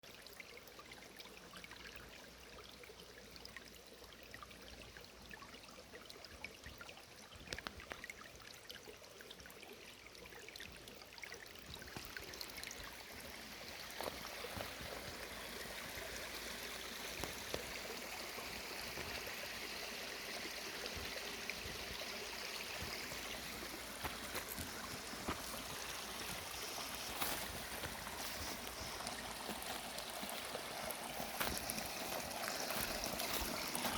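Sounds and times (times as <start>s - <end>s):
stream water running over rocks: 0.0s - 33.9s.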